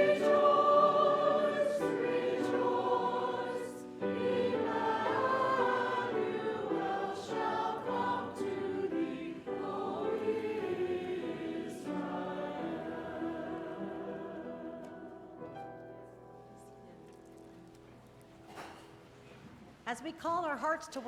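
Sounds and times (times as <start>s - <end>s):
church choir singing: 0.0s - 16.6s.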